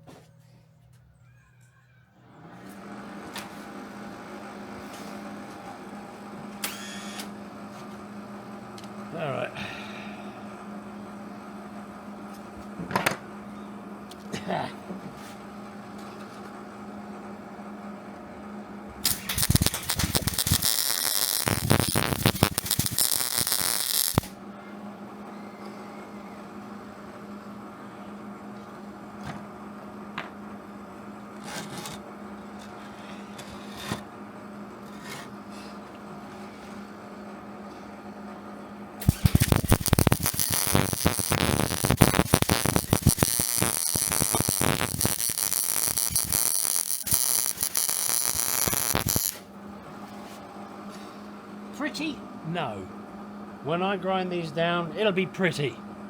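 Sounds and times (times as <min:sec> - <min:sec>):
steady hum: 0:18.3 - 0:25.0, 0:36.9 - 0:56.0
welder sputtering crackle: 0:19.0 - 0:24.4, 0:39.0 - 0:49.5.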